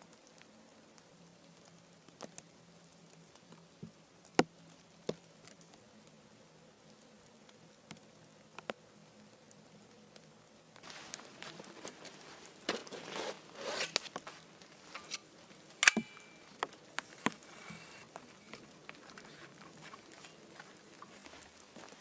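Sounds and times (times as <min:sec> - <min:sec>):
rustling handling noises: 0:10.8 - 0:22.0.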